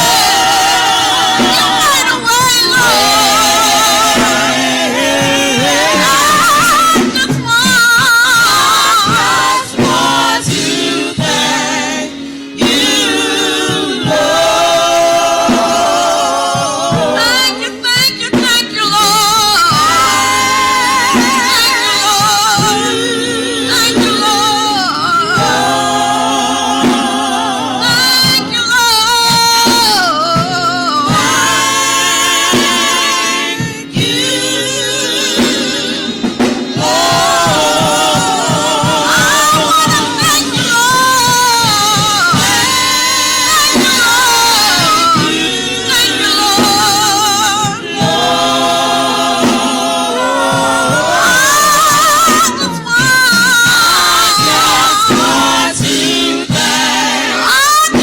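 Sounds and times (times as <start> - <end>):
gospel singing with vibrato: 0.0 - 58.0
instrumental accompaniment: 0.0 - 58.0.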